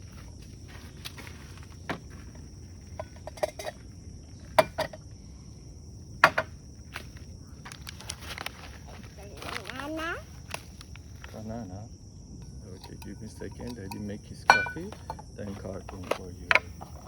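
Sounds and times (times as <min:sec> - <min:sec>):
high-pitched insect drone: 0:00.0 - 0:17.0
cookware knocks and metallic clinks: 0:03.0 - 0:03.8, 0:04.6 - 0:05.0, 0:12.8 - 0:15.3.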